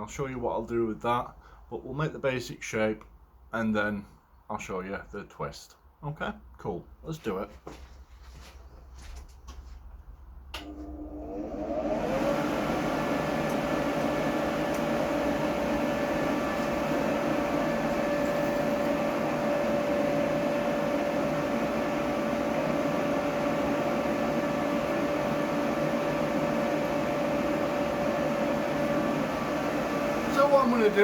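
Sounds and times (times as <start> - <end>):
electric blower motor: 10.6 - 31.0.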